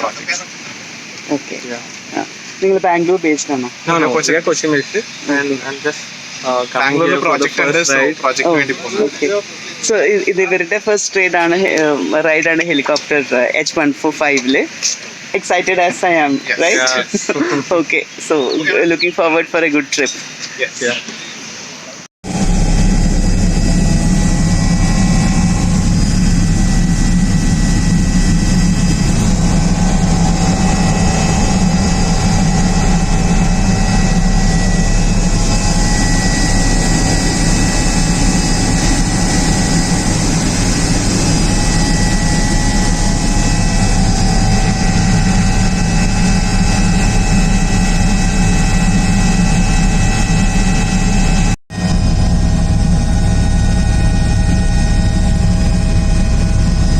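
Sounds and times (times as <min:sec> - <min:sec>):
helicopter engine and rotor drone: 0:00.0 - 0:13.7, 0:14.4 - 0:17.6, 0:22.2 - 0:56.9
high whining tones: 0:22.2 - 0:56.9.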